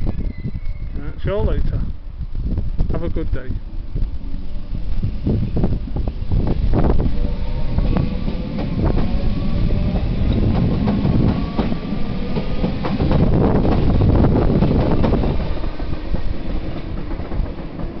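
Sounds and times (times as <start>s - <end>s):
train rumble: 0.0s - 18.0s
electric train motor whine: 3.8s - 15.9s.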